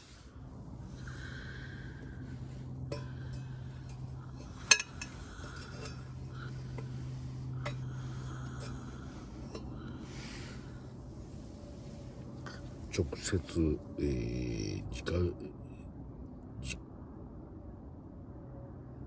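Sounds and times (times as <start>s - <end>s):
metal cookware clinking: 1.0s - 10.8s.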